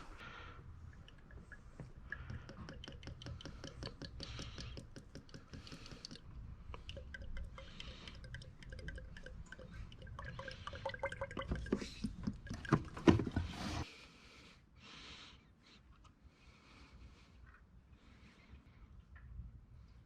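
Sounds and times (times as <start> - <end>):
oil pouring from a bottle: 0.9 - 13.5.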